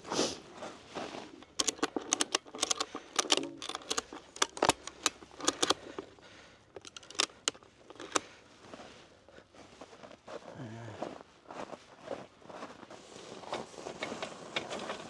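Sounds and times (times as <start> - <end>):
sharp clicks and clinks: 1.4 - 6.1, 6.8 - 8.2.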